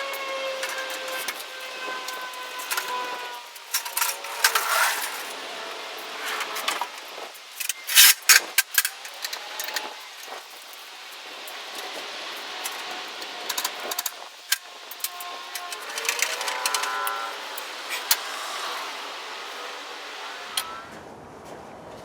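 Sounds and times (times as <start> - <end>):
handling noise: 0.0 - 10.9
duct tape tearing off roll: 0.1 - 5.4, 6.1 - 10.6.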